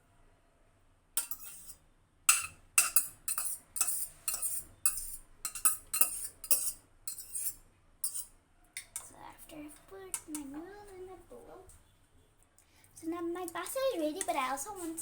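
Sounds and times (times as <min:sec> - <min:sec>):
utensil scraping cookware: 0:01.2 - 0:09.1.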